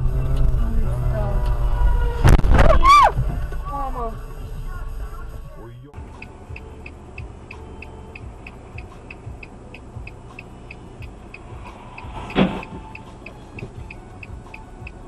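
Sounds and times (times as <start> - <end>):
engine and road rumble: 0.0 - 15.0
car indicator ticking: 6.0 - 15.0
loud thump: 11.0 - 13.0.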